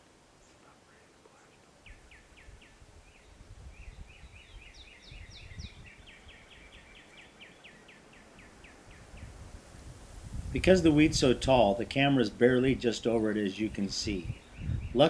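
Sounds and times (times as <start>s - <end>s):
birds calling and chattering: 0.0s - 9.6s, 11.6s - 15.0s
low gusty rumble: 1.9s - 6.7s, 8.4s - 15.0s.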